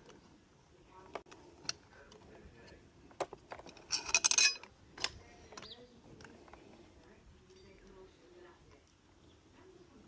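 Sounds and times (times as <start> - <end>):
metal parts and tools clinking: 2.6 - 6.6.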